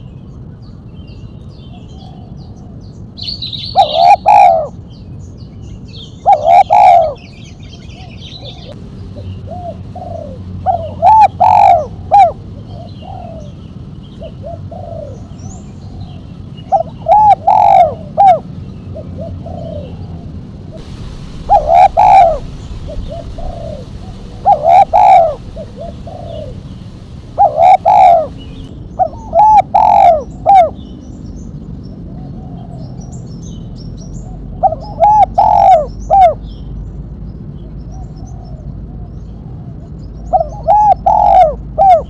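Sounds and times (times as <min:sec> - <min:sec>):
small birds chirping: 0:00.0 - 0:42.0
dove cooing: 0:03.7 - 0:04.7, 0:06.2 - 0:07.2, 0:09.5 - 0:13.6, 0:14.2 - 0:16.0, 0:16.7 - 0:18.4, 0:19.0 - 0:20.1, 0:21.4 - 0:26.6, 0:27.3 - 0:28.4, 0:29.0 - 0:30.8, 0:34.6 - 0:36.4, 0:40.4 - 0:42.0.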